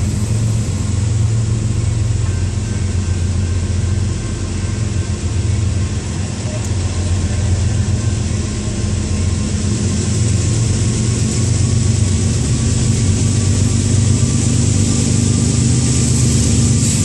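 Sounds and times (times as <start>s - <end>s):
diesel locomotive rumble: 0.0s - 17.0s.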